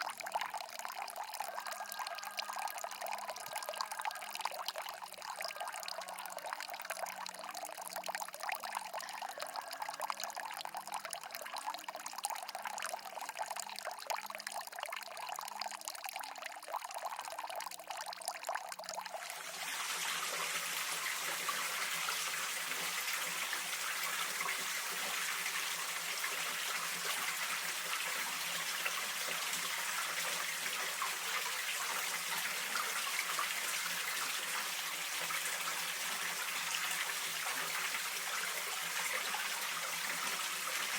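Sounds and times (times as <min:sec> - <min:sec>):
stream water trickling: 0:00.0 - 0:40.9
water rushing: 0:19.1 - 0:40.9.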